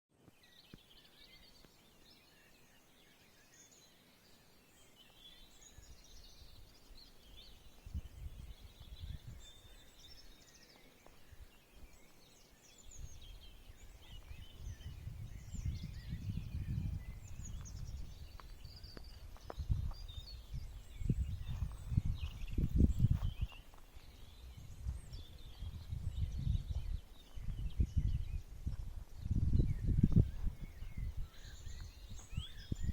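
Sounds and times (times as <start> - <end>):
small birds chirping: 0.2 - 32.9
low rumbling gusts: 14.4 - 23.2.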